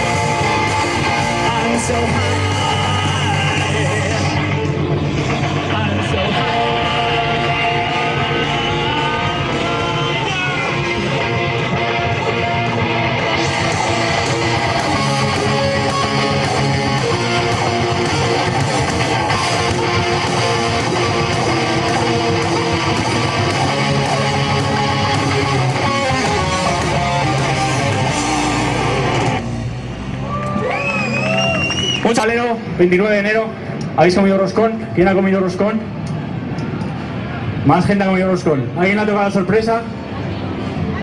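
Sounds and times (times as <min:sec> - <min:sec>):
rock band playing: 0:00.0 - 0:32.0
electric guitar: 0:00.0 - 0:32.8.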